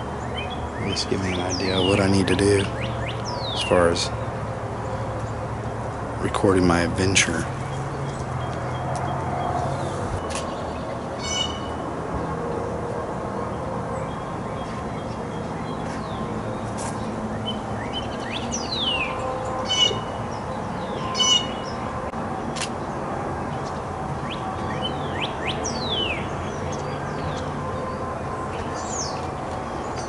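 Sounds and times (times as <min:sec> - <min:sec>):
songbirds calling: 0:00.0 - 0:11.8, 0:13.4 - 0:30.0
steady low rumble: 0:05.6 - 0:10.2.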